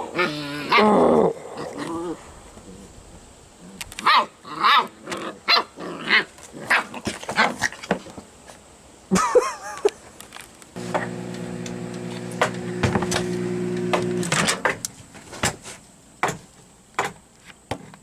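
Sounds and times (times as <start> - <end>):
dog barking and yipping: 4.0 - 4.9, 5.5 - 7.5
microwave oven humming: 10.8 - 14.4.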